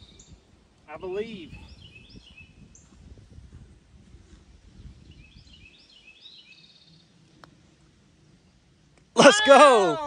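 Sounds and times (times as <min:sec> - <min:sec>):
songbird chirping: 0:00.0 - 0:03.0, 0:04.6 - 0:07.8
wind noise rumble: 0:01.3 - 0:05.8.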